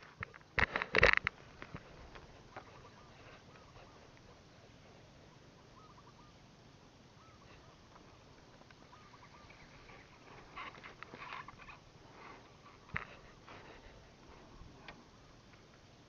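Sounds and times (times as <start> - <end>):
bird chirping: 2.4 - 11.9
rustling: 7.4 - 15.8.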